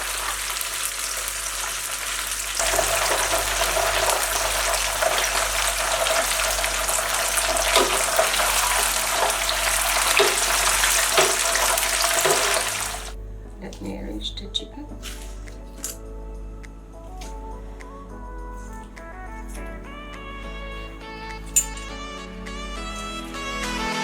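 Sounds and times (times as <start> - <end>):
chicken sizzling in hot oil: 0.0 - 13.2.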